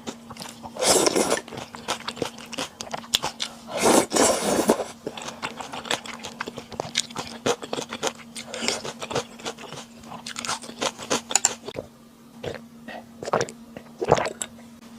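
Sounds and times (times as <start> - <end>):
chewing and crunching food: 0.0 - 14.7
faint steady hum: 0.0 - 14.9.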